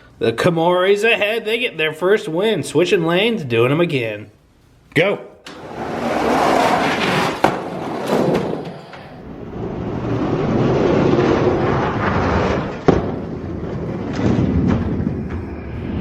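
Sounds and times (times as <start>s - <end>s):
toy truck wheels rumbling: 5.5s - 16.0s
sharp knocks: 12.7s - 15.6s.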